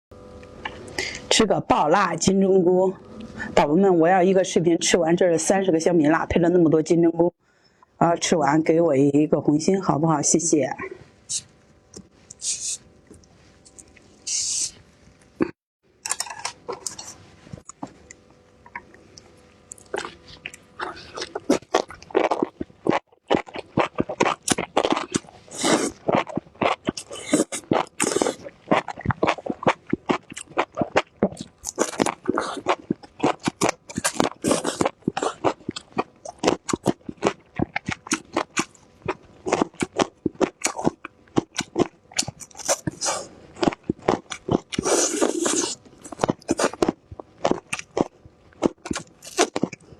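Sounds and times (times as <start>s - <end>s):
wet chewing: 16.3s - 49.9s
crisp crunching bites: 19.7s - 38.8s, 43.6s - 49.8s.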